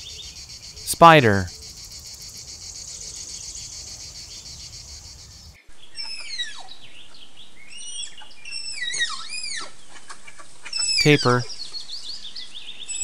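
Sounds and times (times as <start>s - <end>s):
high pulsing insect trill: 0.0s - 0.9s, 1.5s - 5.6s.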